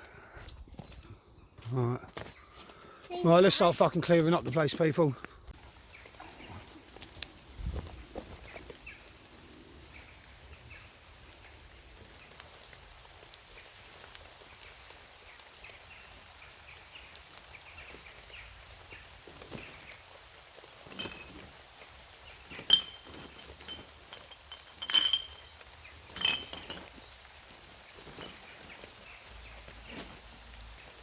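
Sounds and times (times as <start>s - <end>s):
drink containers clinking together: 20.9s - 21.6s, 22.5s - 27.1s.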